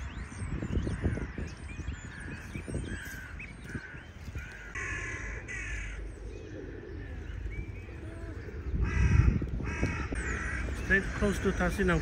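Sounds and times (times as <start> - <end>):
small birds chirping: 0.0 - 12.0
crow cawing: 0.9 - 7.4, 8.0 - 12.0.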